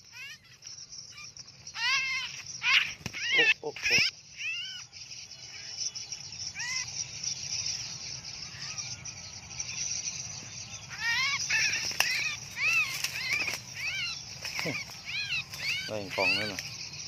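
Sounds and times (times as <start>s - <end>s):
high insect drone: 0.0s - 17.0s
small birds chirping: 0.0s - 17.0s.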